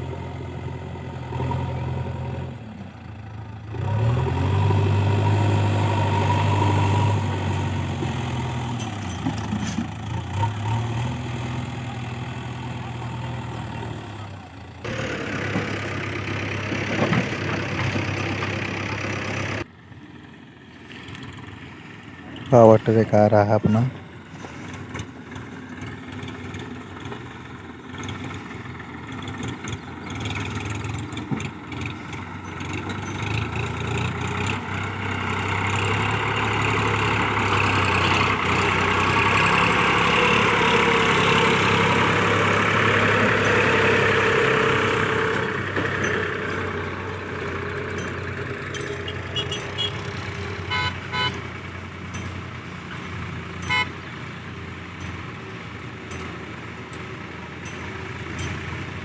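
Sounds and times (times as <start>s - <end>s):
tractor diesel engine running: 0.0s - 59.0s
short tooting beeps: 50.7s - 51.4s.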